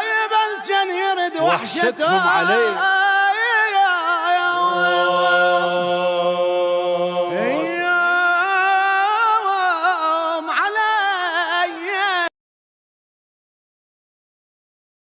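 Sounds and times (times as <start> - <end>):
person singing ornamented notes: 1.0 - 10.0.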